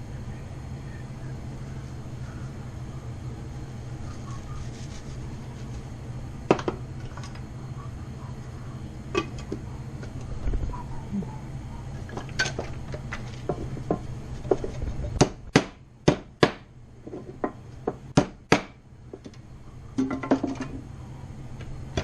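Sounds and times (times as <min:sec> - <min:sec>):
steady low hum: 0:00.0 - 0:22.0
sharp knocks on hard objects: 0:17.9 - 0:18.8.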